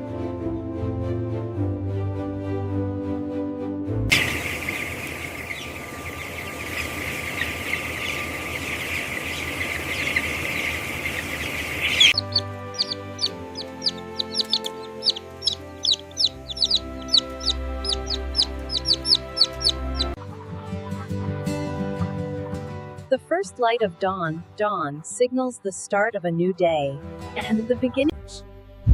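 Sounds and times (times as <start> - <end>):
background music: 0.0 - 6.3, 7.3 - 28.9
chicks peeping: 4.1 - 22.2.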